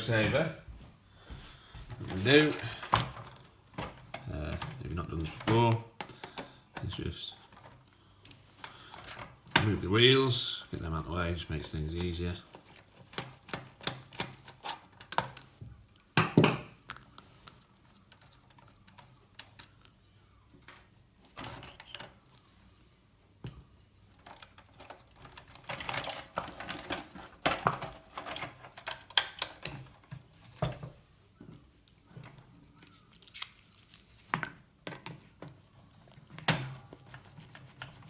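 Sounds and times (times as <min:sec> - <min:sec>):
small tools and plastic parts clicking: 0:02.2 - 0:10.1, 0:12.0 - 0:22.7, 0:24.1 - 0:30.9.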